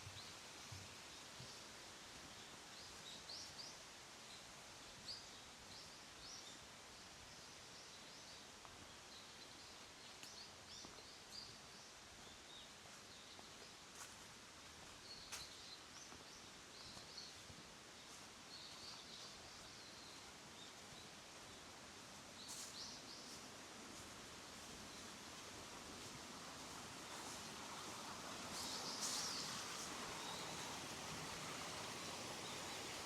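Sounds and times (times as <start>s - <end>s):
creek hissing: 22.4s - 33.0s.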